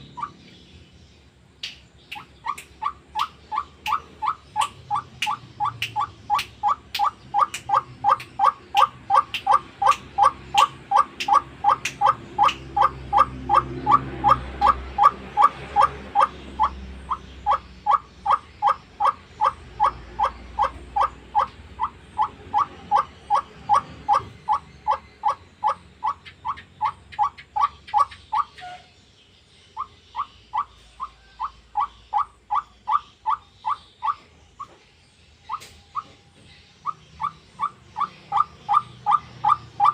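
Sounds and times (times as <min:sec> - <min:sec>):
waterhen calling: 0:02.1 - 0:28.9, 0:36.8 - 0:39.9.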